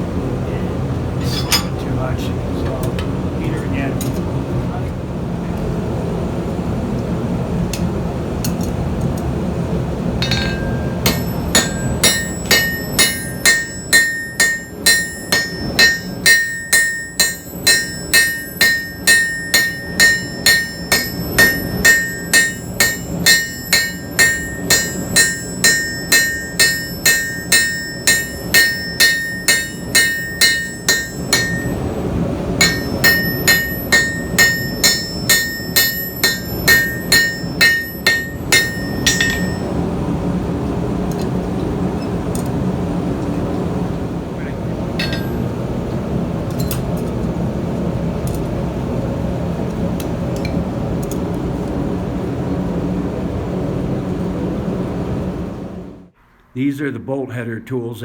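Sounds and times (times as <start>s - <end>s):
hammer striking hot steel on anvil: 1.2s - 1.8s, 10.2s - 39.8s, 44.9s - 45.6s.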